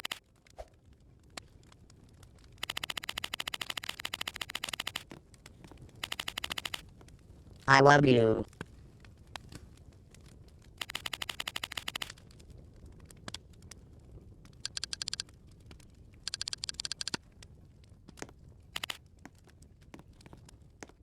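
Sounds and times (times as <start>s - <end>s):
rapid clicking: 2.6s - 5.2s, 5.8s - 6.8s, 10.8s - 12.2s, 14.5s - 15.3s, 16.2s - 17.2s, 18.8s - 19.0s.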